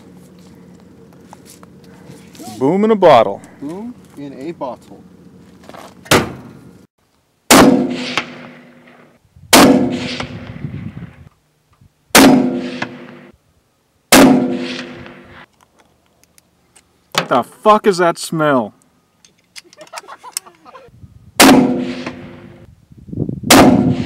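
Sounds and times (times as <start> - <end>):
gunshots: 7.5 - 10.4, 12.2 - 13.3, 14.1 - 15.2, 21.4 - 22.6, 23.5 - 24.0.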